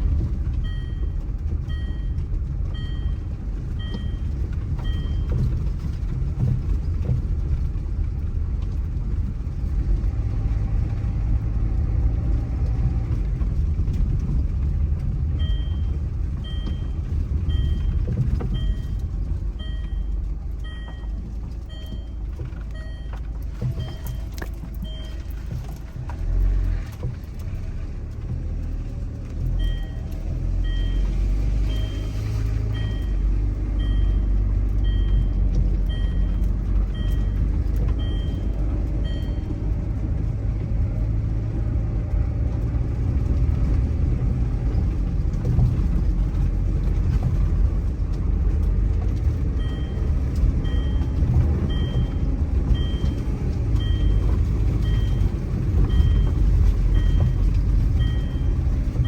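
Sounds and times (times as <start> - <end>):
heavy engine rumbling: 0.0 - 59.0
reversing alarm beeping: 19.6 - 25.3, 31.7 - 33.2, 33.8 - 34.2, 49.6 - 53.2, 53.8 - 59.0.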